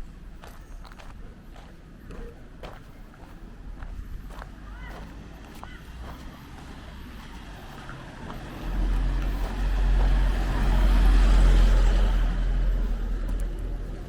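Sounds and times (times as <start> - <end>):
vehicle driving past: 5.2 - 14.0.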